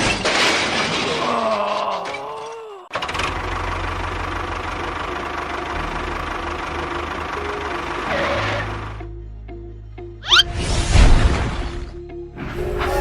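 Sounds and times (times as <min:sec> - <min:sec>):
tractor engine putter: 0:02.9 - 0:09.0.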